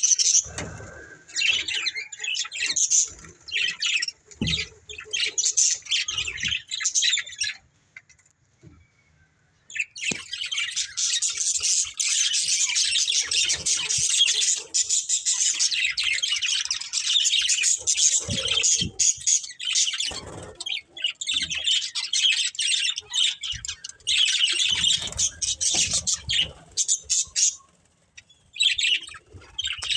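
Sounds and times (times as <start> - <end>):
budgerigars chattering and chirping: 9.7 - 29.9.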